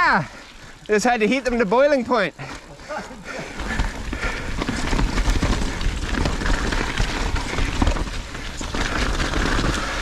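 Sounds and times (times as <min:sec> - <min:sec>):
bike tyres rumbling on trail: 0:03.4 - 0:10.0
bike rattling over bumps: 0:03.8 - 0:10.0
wind on microphone: 0:04.4 - 0:08.3.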